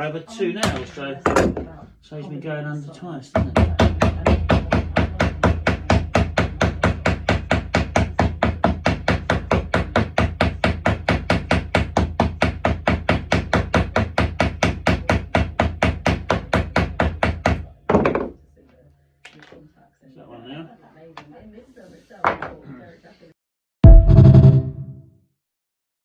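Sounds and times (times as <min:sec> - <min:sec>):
low hum: 0:23.8 - 0:25.0.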